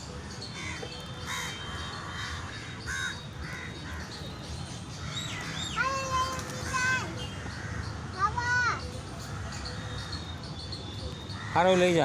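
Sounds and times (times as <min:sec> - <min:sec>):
crows cawing: 0:00.6 - 0:04.2, 0:06.7 - 0:08.6, 0:11.4 - 0:12.0.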